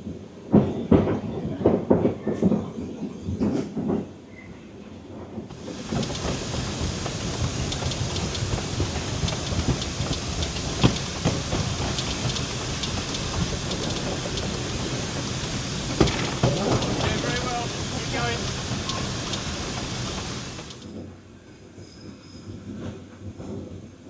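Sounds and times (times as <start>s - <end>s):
wheels clattering over rail joints: 5.5s - 20.9s
train rumbling along track: 5.5s - 21.0s.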